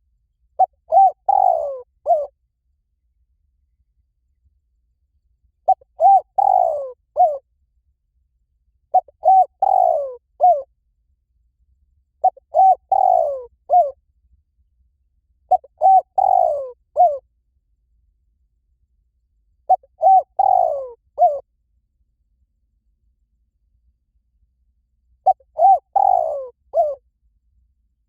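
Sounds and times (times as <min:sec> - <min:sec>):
dove cooing: 0:00.6 - 0:02.3, 0:05.7 - 0:07.4, 0:08.9 - 0:10.6, 0:12.2 - 0:14.0, 0:15.5 - 0:17.2, 0:19.7 - 0:21.4, 0:25.2 - 0:27.0.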